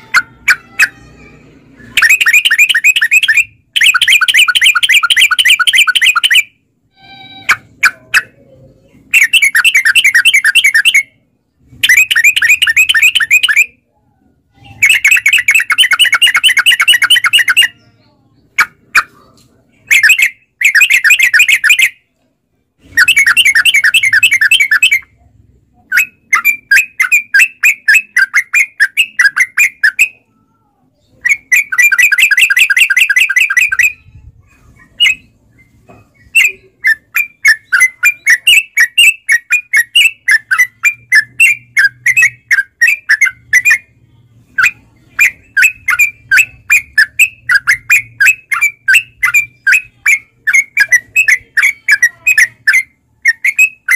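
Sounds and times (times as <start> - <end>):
bird rolling trills: 22.8 - 25.1.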